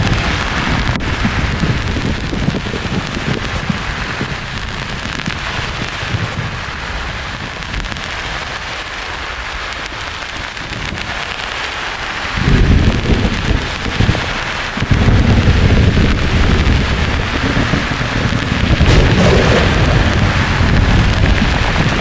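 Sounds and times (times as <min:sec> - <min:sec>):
thunder rumbling: 0:00.0 - 0:07.8, 0:12.4 - 0:22.0
rain hiss: 0:00.0 - 0:22.0.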